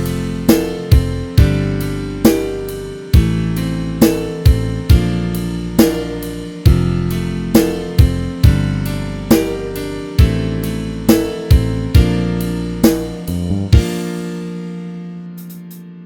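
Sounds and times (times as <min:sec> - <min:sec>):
held bass and chord notes: 0:00.0 - 0:15.7
drum kit beats: 0:00.0 - 0:15.9.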